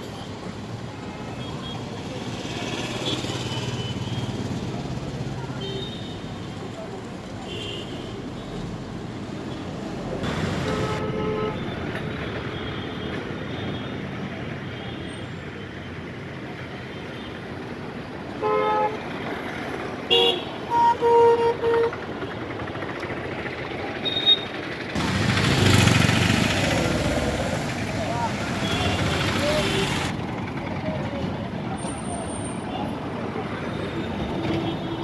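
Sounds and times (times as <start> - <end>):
rush of traffic noise: 0.0 - 35.0
traffic engines running: 0.0 - 35.0
vehicle horns honking: 10.3 - 11.7, 20.1 - 22.0, 28.3 - 30.1.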